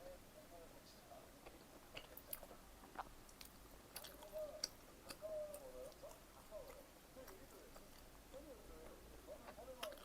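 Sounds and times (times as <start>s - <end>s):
person chewing: 1.9s - 8.4s, 9.5s - 10.0s.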